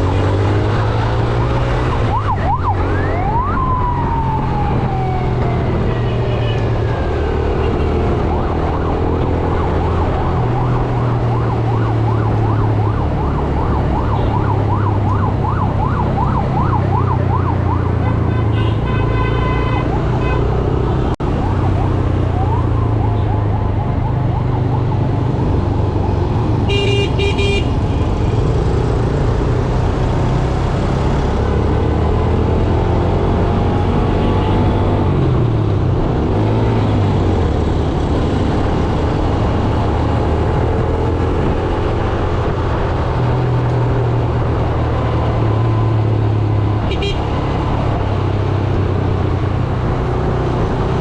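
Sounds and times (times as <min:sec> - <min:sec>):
wind and road noise: 0:00.0 - 0:51.0
siren falling in pitch: 0:01.2 - 0:06.8, 0:07.6 - 0:18.3, 0:19.8 - 0:25.7
fast warbling siren: 0:01.8 - 0:06.4, 0:07.6 - 0:18.3, 0:21.3 - 0:25.4
vehicle horns tooting: 0:18.0 - 0:20.5, 0:26.7 - 0:27.8, 0:46.9 - 0:47.3.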